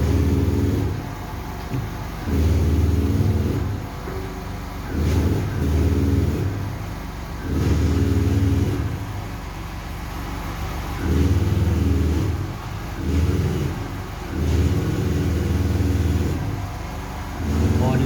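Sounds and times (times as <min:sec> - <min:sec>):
diesel engine running unevenly: 0:00.0 - 0:18.0.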